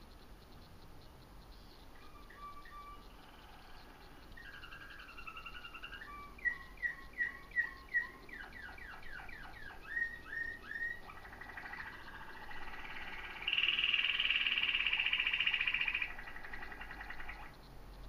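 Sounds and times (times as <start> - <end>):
bird singing short chirps: 1.6 - 11.1.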